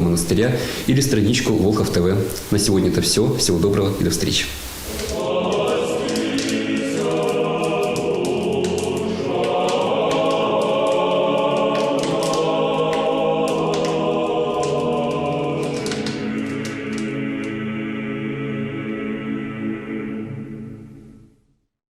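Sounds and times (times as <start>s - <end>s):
crackling clicks: 4.3s - 17.8s
choir singing slow chords: 4.8s - 21.6s.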